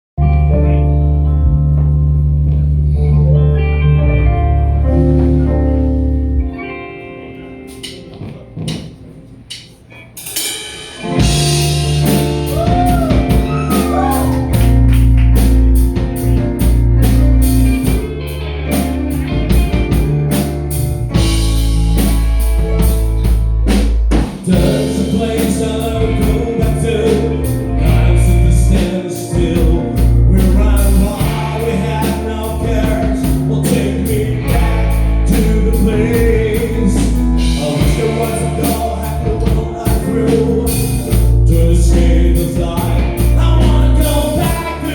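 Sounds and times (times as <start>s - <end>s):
rock band playing: 0.2s - 44.9s
man singing: 11.0s - 15.2s, 24.3s - 44.9s.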